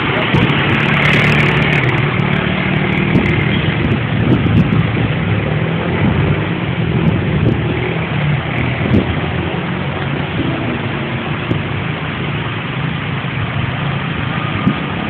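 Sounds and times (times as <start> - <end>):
steady rain: 3.7 - 15.0.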